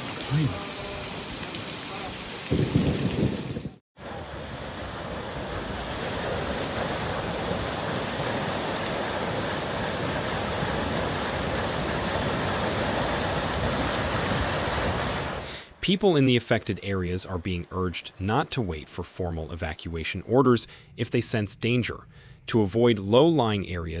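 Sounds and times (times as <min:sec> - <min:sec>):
rain: 0:00.0 - 0:18.2
rush of water: 0:00.0 - 0:20.2.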